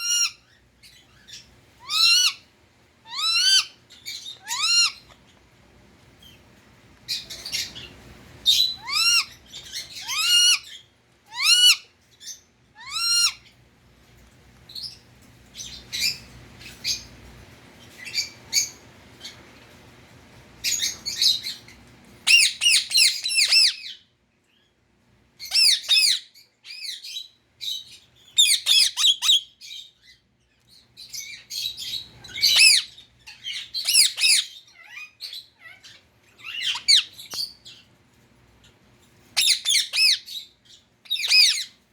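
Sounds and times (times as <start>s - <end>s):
parakeet squawking: 0.0s - 0.5s, 1.3s - 5.2s, 7.1s - 11.9s, 12.8s - 13.5s, 22.3s - 24.0s, 25.4s - 27.0s, 27.7s - 29.8s, 31.1s - 37.4s, 39.4s - 40.4s, 41.0s - 41.8s.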